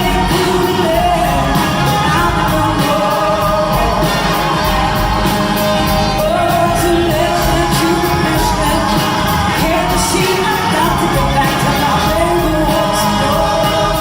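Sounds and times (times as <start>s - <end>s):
drums keeping a steady beat: 0.0s - 14.0s
lead vocalist singing: 0.0s - 14.0s
live rock band playing: 0.0s - 14.0s.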